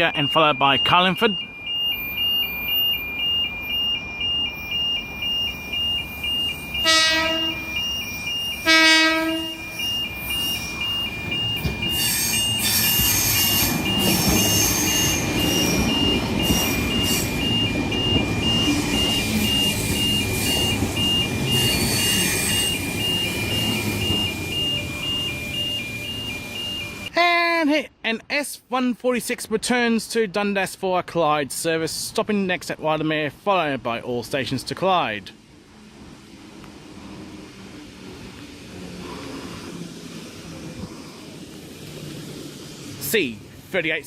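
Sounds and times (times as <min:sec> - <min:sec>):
two-tone electronic warning beep: 0:00.0 - 0:27.1
high-pitched brake squeal: 0:01.8 - 0:27.1
train rumble: 0:06.1 - 0:27.1, 0:35.3 - 0:44.0
train horn blasts: 0:06.8 - 0:07.8, 0:08.6 - 0:09.8.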